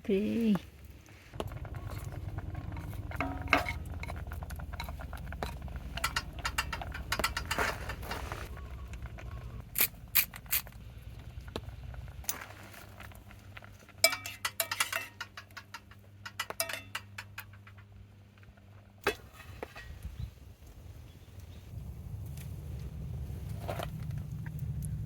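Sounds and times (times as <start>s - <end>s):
low steady hum: 0.0s - 25.0s
cookware clinking and clattering: 3.0s - 8.4s, 14.0s - 17.7s.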